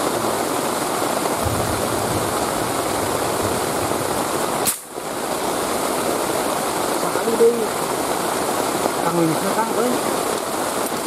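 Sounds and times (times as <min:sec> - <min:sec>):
river water rushing: 0:00.0 - 0:11.0
sharp click: 0:04.6 - 0:04.9.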